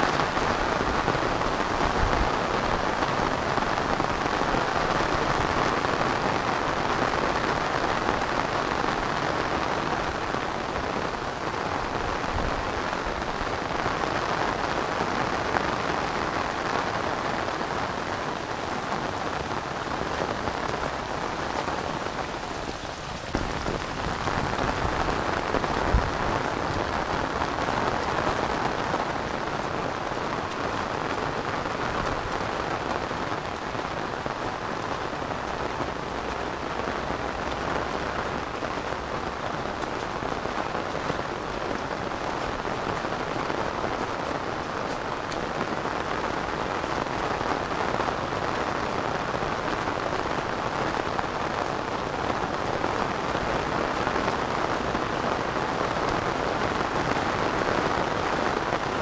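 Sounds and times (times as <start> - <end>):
heavy rain on umbrella: 0.0 - 59.0.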